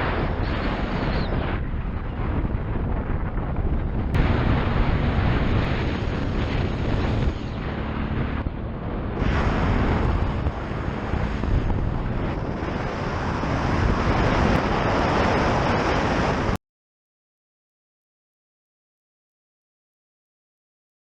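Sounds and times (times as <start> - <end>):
wind buffeting microphone: 0.0 - 16.6.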